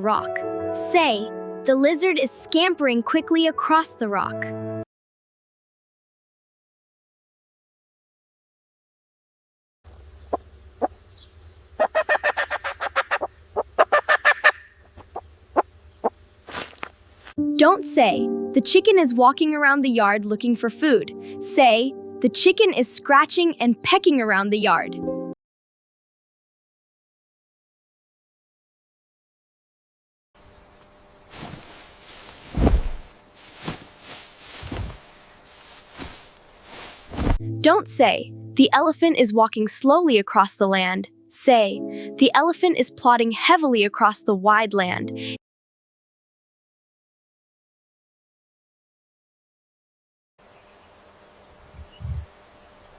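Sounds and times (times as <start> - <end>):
chickens clucking: 11.8 - 15.2
heavy thumps: 31.3 - 37.5.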